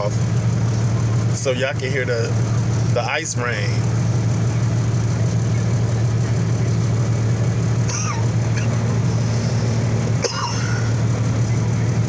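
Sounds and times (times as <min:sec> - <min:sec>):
diesel engine idling with fan: 0:00.0 - 0:12.0.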